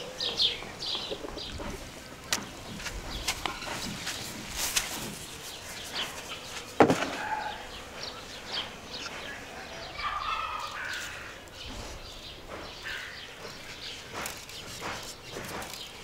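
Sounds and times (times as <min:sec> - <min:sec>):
birds chirping: 0:00.0 - 0:16.0
bird giving a fuller call: 0:05.6 - 0:14.0.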